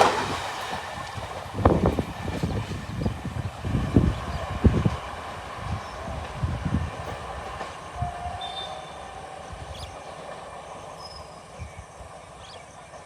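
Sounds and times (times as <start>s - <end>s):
train wheels thumping over rails: 0.0s - 11.4s.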